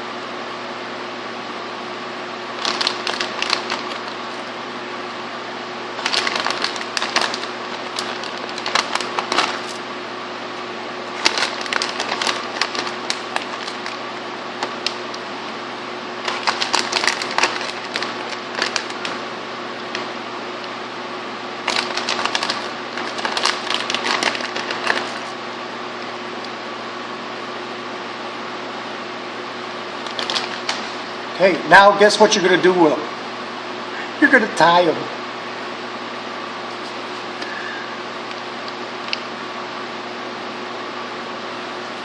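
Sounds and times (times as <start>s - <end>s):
steady machine hum: 0.0s - 42.0s
rapid crackling clicks from hands: 2.6s - 4.2s, 6.0s - 9.8s, 11.1s - 14.0s, 14.6s - 15.2s, 16.2s - 19.2s, 21.6s - 25.2s, 30.0s - 30.9s.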